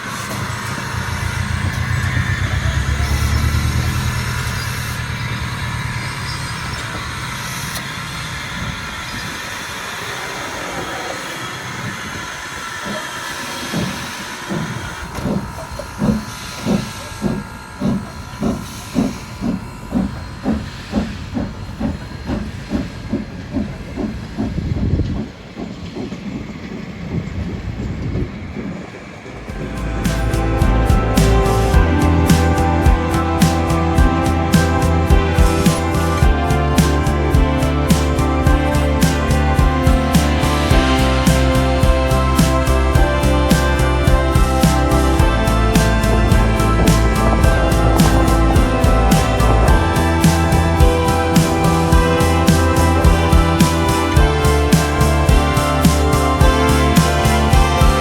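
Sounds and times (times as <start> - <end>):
locomotive exhaust chuffs: 0.1 - 28.8
steam hiss: 7.1 - 26.5
low rumble: 13.7 - 58.0.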